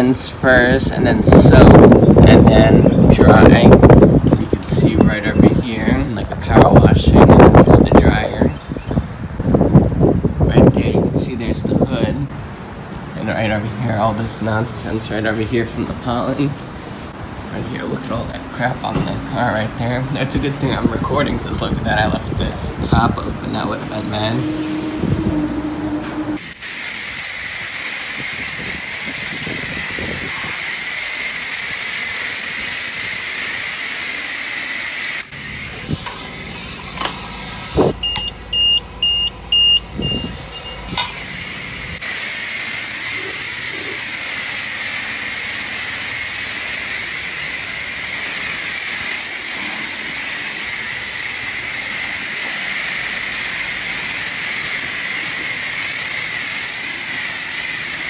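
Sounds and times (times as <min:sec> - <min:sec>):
pressure washer spraying water: 0:26.4 - 0:58.0
short electronic beeps: 0:38.0 - 0:41.0.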